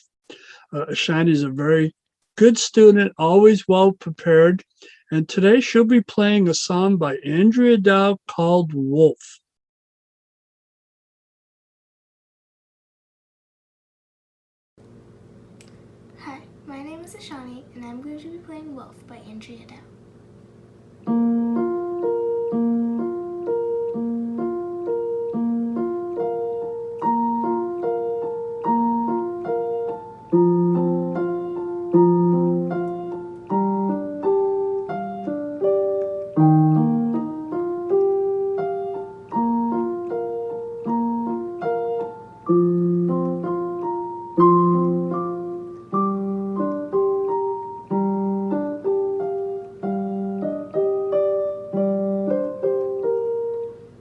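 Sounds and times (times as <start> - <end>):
solo piano piece: 21.0 - 54.0.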